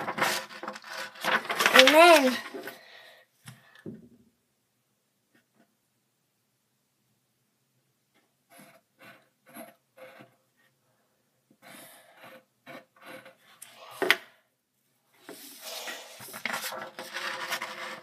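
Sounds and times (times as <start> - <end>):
drawing strokes on paper: 11.6 - 14.0.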